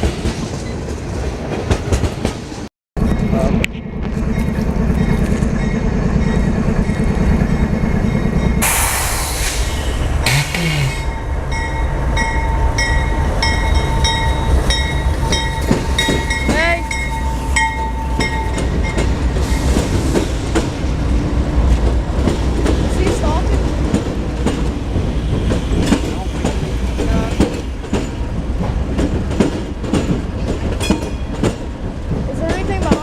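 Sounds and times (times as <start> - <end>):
train deep rumble: 0.0 - 33.0
wheels clicking over rail joints: 18.2 - 33.0.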